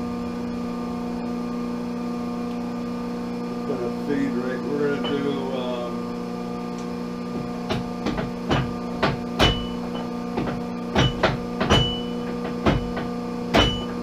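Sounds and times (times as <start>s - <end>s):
lathe humming: 0.0s - 14.0s.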